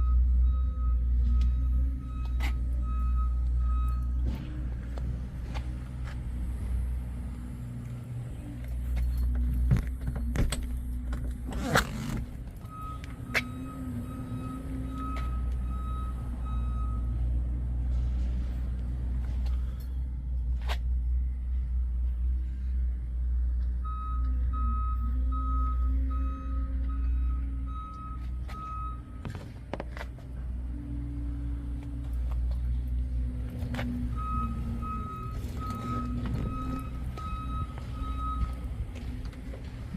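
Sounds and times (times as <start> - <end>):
high reversing beeps: 0.0 - 4.3, 12.6 - 17.3, 23.8 - 29.2, 34.1 - 38.8
vehicle engine rumbling: 0.0 - 39.9.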